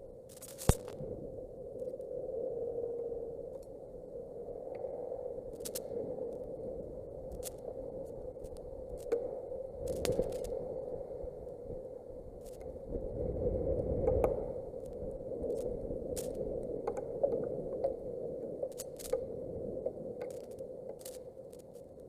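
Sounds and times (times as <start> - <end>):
rain ticking on microphone: 0.0 - 22.0
wind buffeting microphone: 6.4 - 20.1.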